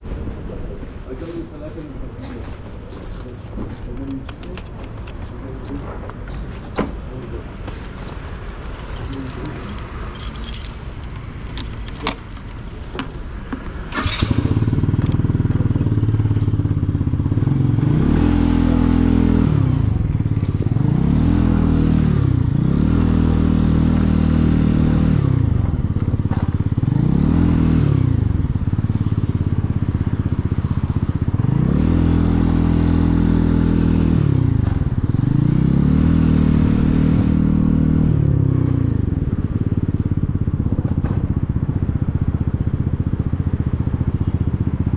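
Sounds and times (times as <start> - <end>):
clicks and rattles: 8.2 - 15.3
motorcycle engine revving: 8.2 - 44.9.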